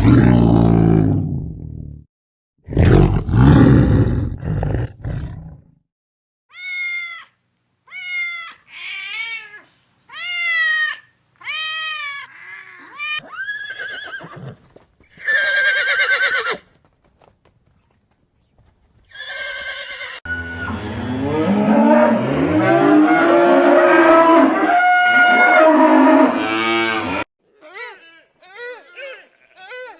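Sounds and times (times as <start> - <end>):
animal roar: 0.0 - 1.8, 2.7 - 5.7, 20.3 - 27.2
high animal calls: 10.2 - 14.6.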